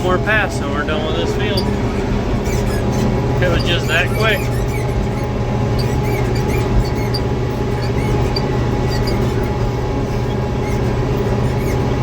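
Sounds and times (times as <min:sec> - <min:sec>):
tractor engine running: 0:00.0 - 0:12.0
squeaky seat: 0:01.0 - 0:12.0.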